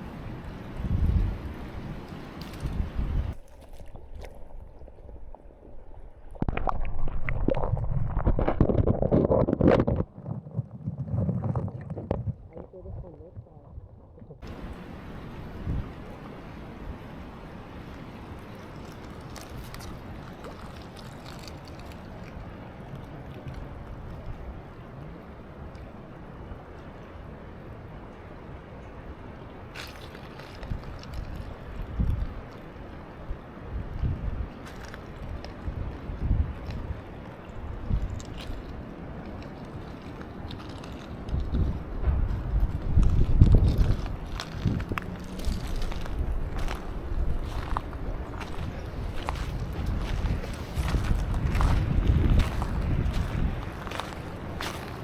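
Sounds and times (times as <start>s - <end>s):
wind buffeting microphone: 0.0s - 3.4s, 4.0s - 29.3s, 30.5s - 55.0s
river water splashing and gurgling: 0.0s - 13.4s, 14.0s - 55.0s
river water rushing: 14.4s - 30.7s.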